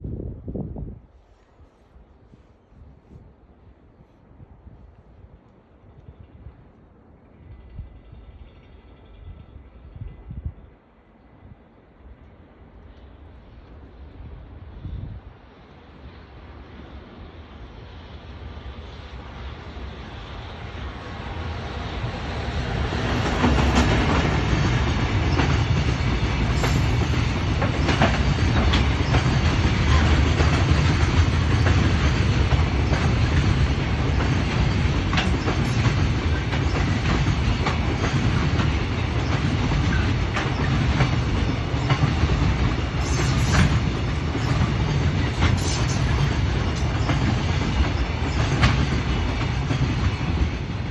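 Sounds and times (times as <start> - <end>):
freight train passing: 0.0 - 50.9
wheels clicking over rail joints: 22.8 - 50.9.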